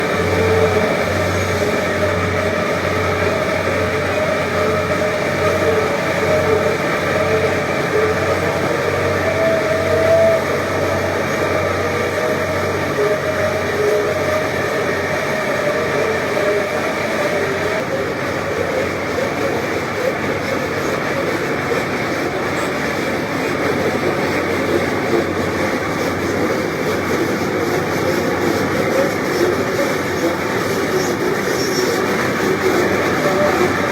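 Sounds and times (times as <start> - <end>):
excavator mechanical drone: 0.0 - 33.9
wavering machine whine: 0.0 - 33.9.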